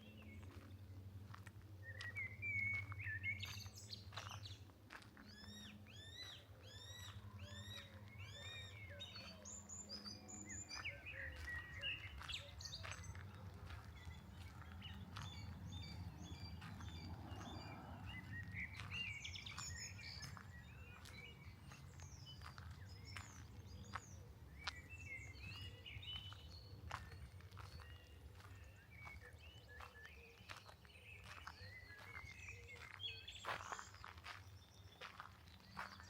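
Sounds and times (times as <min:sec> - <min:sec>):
songbirds singing: 0:00.0 - 0:36.0.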